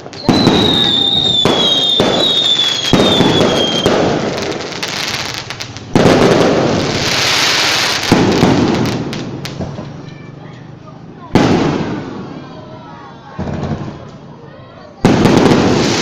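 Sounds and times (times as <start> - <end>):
falling firework whistles: 0.0 - 5.6
crackling hiss: 0.0 - 10.0
fireworks bangs: 0.0 - 16.0.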